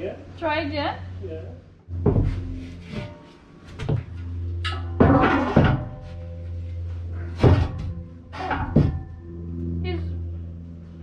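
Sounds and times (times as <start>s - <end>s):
steady low hum: 0.0s - 11.0s
hard knocks and bumps: 1.9s - 6.5s, 7.2s - 9.3s
background music: 1.9s - 11.0s.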